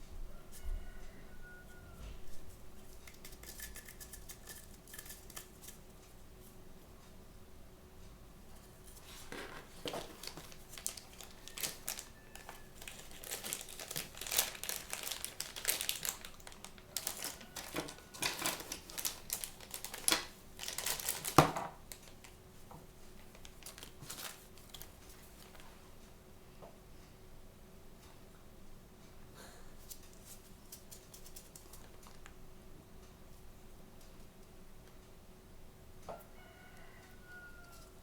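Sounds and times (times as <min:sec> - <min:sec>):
plastic packaging crinkling and tearing: 0:09.2 - 0:22.4, 0:23.2 - 0:25.6.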